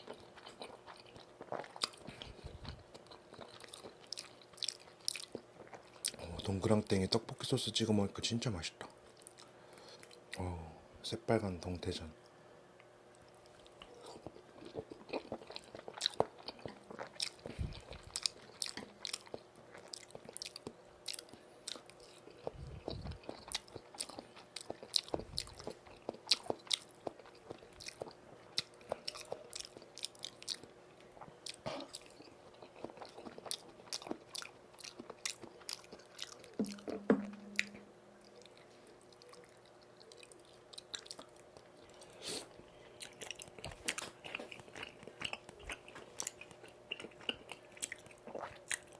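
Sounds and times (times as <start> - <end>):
close chewing with mouth clicks: 0.0 - 6.7, 13.1 - 48.9
short low hum: 36.7 - 38.4.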